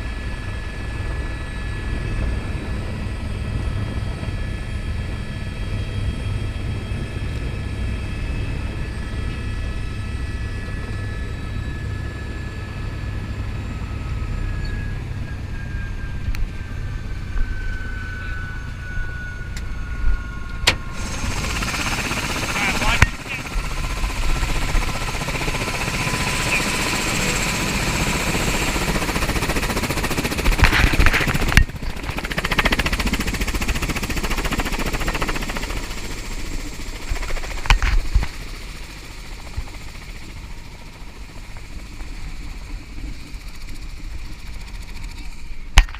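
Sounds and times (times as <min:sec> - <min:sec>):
helicopter rotors chopping: 0:16.1 - 0:45.9.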